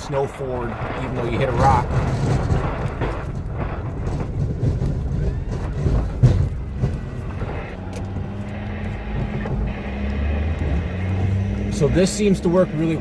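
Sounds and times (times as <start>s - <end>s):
plow blade knocks and clunks: 0.0s - 9.7s
pickup engine rumble: 0.0s - 13.0s.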